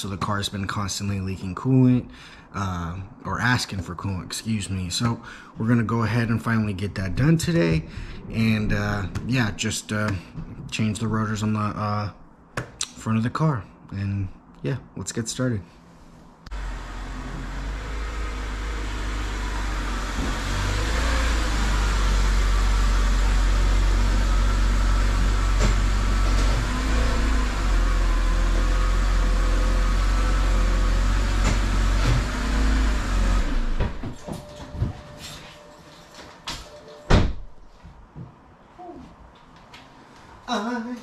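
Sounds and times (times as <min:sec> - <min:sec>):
car engine running: 0:16.5 - 0:34.6.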